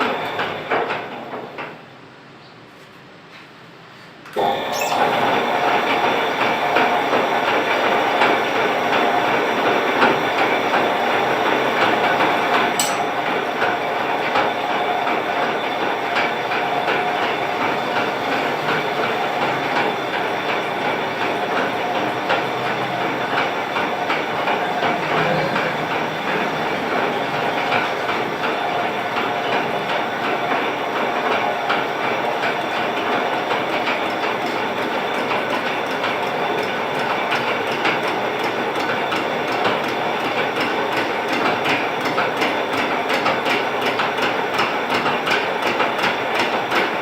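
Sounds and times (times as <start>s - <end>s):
metal lathe humming: 10.2s - 37.2s.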